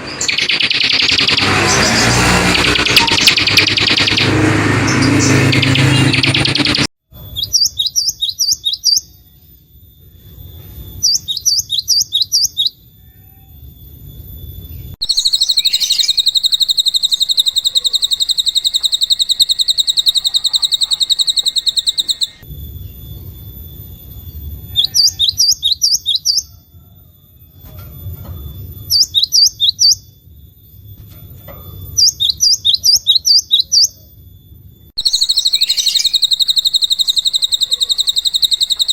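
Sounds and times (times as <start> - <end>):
loud noisy sound: 0.0 - 6.9
songbird chirps: 0.0 - 26.5, 27.4 - 38.9
bird trill: 0.0 - 38.9.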